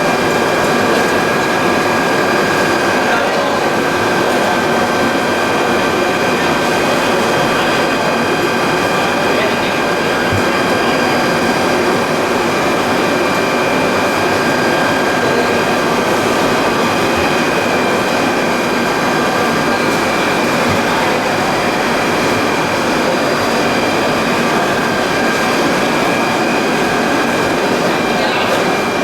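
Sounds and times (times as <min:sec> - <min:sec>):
machinery running with high whine: 0:00.0 - 0:29.0.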